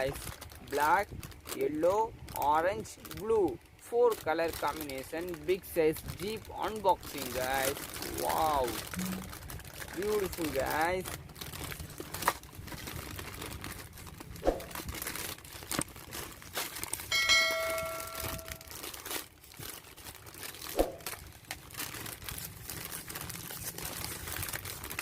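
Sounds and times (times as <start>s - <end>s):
toy packaging crinkling: 0.0s - 25.0s
steady ringing tone: 17.1s - 18.7s.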